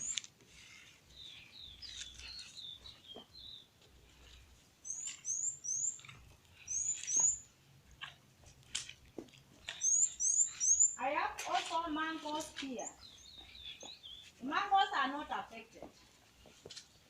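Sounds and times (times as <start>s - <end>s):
birds chirping: 0.0s - 8.4s, 9.1s - 17.0s.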